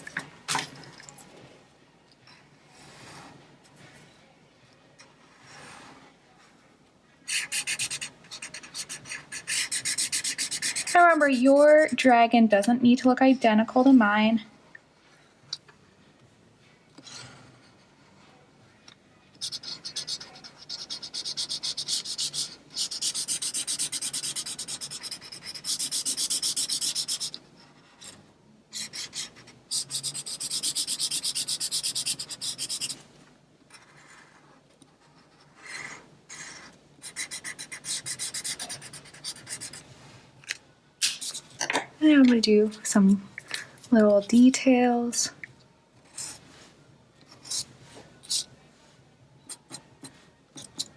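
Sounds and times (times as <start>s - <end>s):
coloring tool scribbling on paper: 7.3s - 12.1s, 19.4s - 33.0s, 35.0s - 39.9s, 47.3s - 48.5s, 49.5s - 50.9s.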